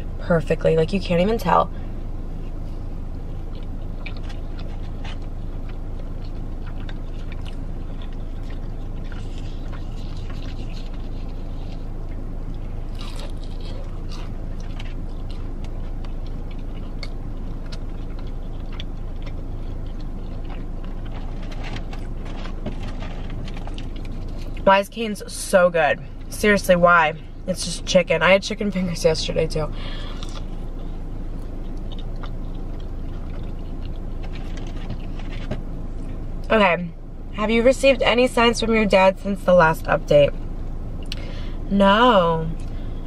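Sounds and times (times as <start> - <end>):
low hum inside a car: 0.0 - 43.0
person chewing crunchy food: 1.9 - 24.7, 29.8 - 36.5.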